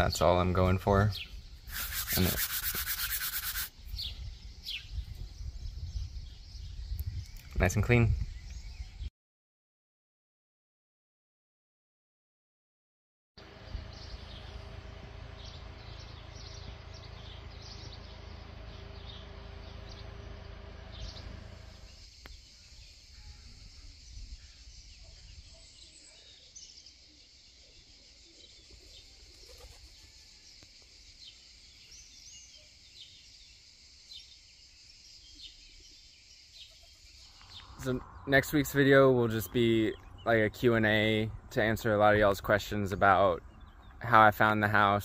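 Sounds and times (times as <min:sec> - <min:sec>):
birds chirping: 0:00.0 - 0:09.1, 0:13.4 - 0:45.0
steady low hum: 0:13.4 - 0:25.4, 0:37.0 - 0:44.0.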